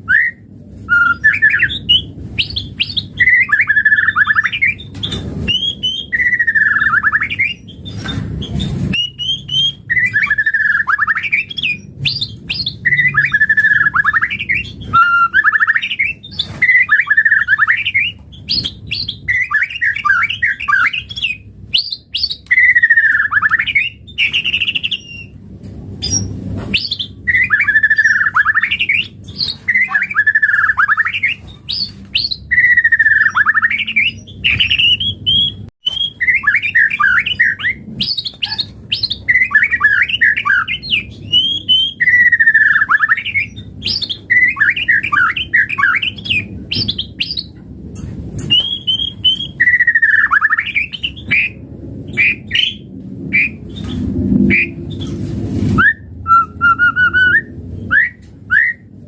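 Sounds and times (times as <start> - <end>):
bird singing varied phrases: 0.2 - 25.4, 26.0 - 47.5, 48.4 - 55.1.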